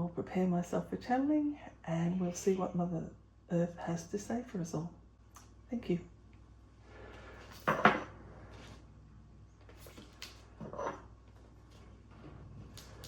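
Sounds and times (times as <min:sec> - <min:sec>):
objects clattering: 0:07.5 - 0:08.2.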